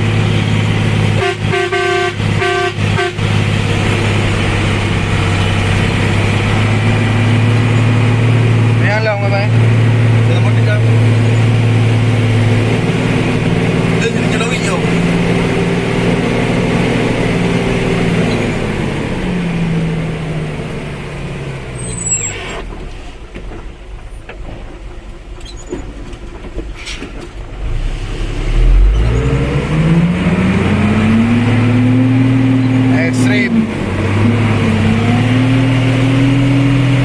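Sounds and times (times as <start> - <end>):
vehicle engine running: 0.0 - 25.5, 27.3 - 37.0
high squeal: 21.8 - 22.7.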